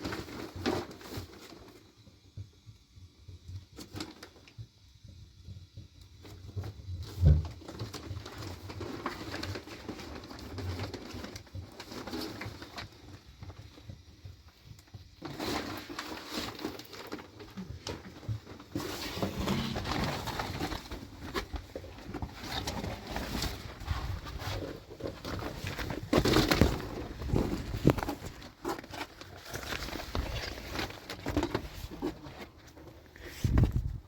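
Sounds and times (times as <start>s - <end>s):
rustling: 15.2s - 34.0s.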